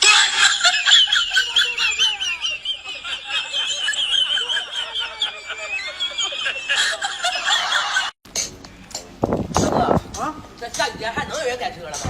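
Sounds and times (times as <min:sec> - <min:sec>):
high-pitched giggling laughter: 0:00.0 - 0:08.2.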